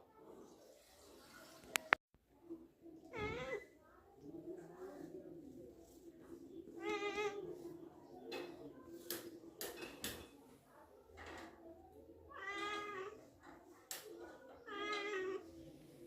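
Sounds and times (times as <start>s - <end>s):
cat meowing: 3.1s - 3.6s, 12.3s - 13.2s.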